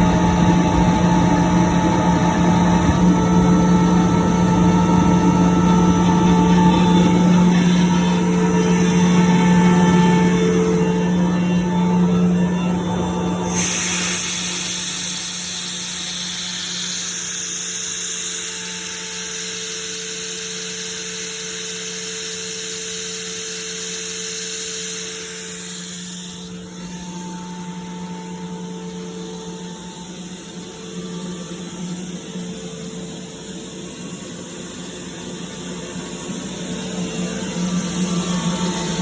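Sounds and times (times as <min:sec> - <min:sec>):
air compressor hum: 0:00.0 - 0:39.0
hiss of air: 0:13.5 - 0:18.6.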